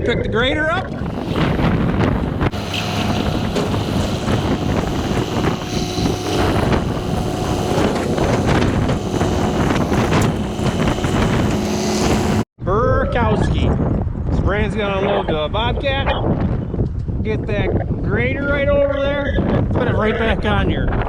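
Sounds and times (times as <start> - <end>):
diesel engine running: 0.8 - 12.5
wind buffeting microphone: 0.8 - 12.5.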